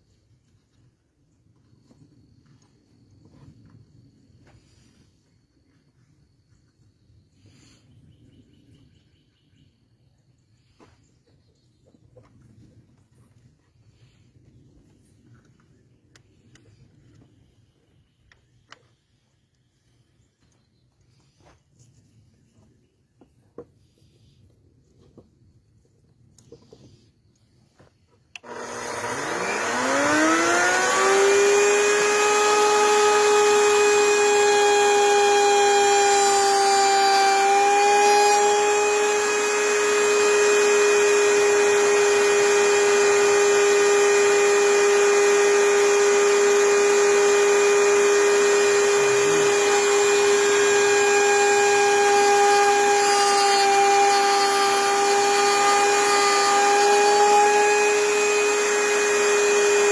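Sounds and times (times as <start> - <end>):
power tool motor whining: 28.4 - 59.9.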